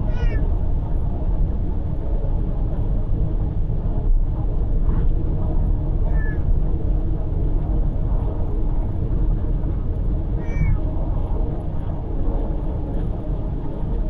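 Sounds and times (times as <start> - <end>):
cat meowing: 0.0 - 0.4, 6.1 - 6.4, 10.4 - 10.8
car road and engine rumble: 0.0 - 2.0.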